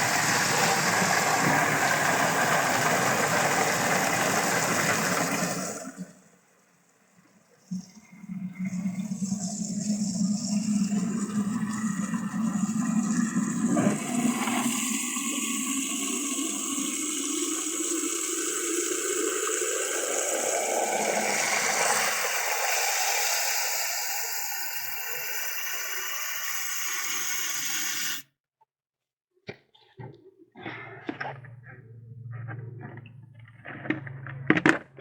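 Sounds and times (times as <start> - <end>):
running water rushing: 0.0 - 6.1, 10.5 - 28.2.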